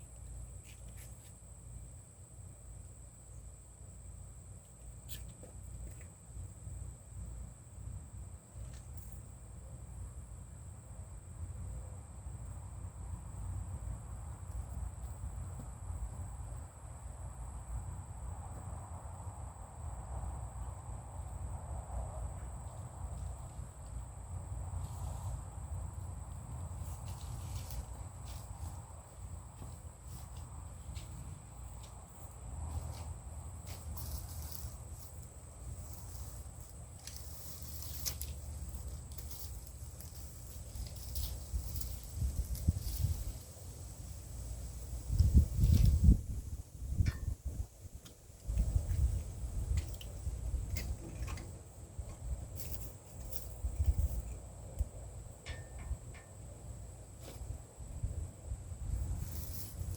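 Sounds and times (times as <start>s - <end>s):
wind rumble on microphone: 40.4s - 54.9s, 57.4s - 59.9s.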